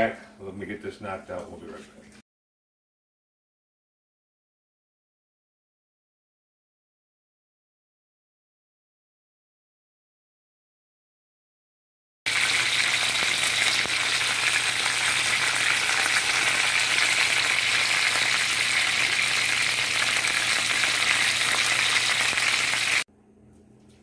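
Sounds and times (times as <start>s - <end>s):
chicken frying in hot oil: 12.3s - 23.1s.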